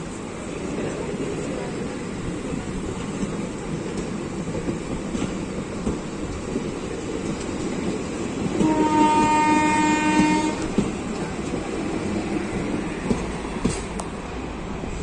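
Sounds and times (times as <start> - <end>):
train wheels clacking over rail joints: 3.0 - 11.8, 12.6 - 14.1
locomotive horn: 8.6 - 10.7.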